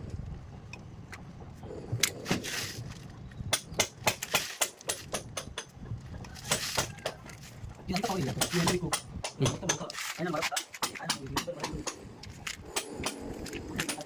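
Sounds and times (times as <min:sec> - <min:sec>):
irregular sharp knocks and clicks: 0:08.0 - 0:13.2.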